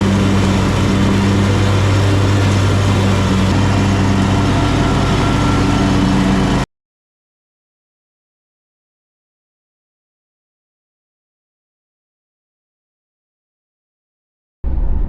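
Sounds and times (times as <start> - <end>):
mower engine cutting grass: 0.0 - 6.7.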